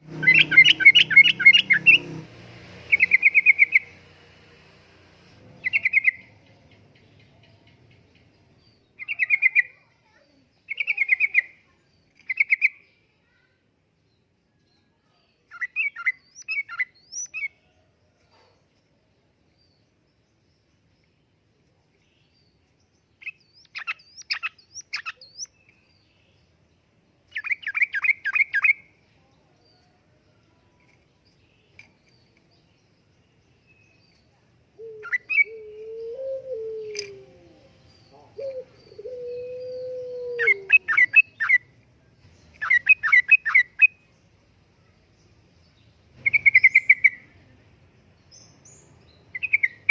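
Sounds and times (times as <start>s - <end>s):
bird warbling: 0.0s - 2.1s, 34.8s - 41.6s.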